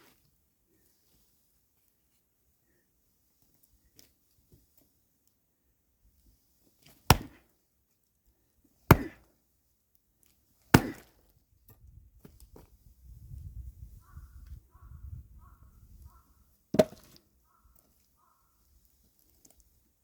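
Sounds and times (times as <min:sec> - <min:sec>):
axe chopping logs: 0:07.1 - 0:07.5, 0:08.9 - 0:09.3, 0:10.7 - 0:11.2, 0:16.7 - 0:17.2.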